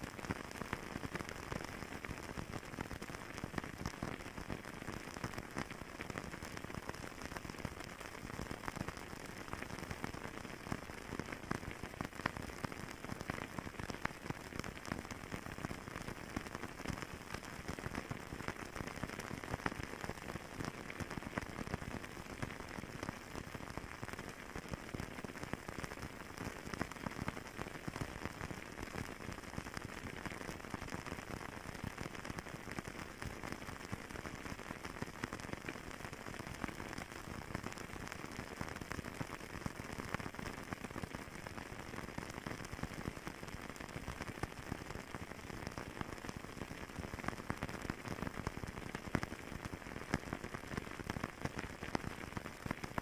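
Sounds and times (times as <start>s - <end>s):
fireplace fire crackling: 0.1s - 37.2s.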